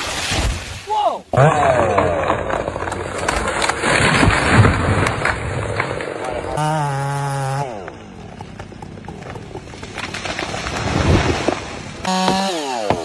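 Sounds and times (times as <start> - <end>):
tree branches cracking and breaking: 0.0 - 6.6, 9.7 - 13.0
chainsaw engine: 6.2 - 9.0, 11.2 - 13.0.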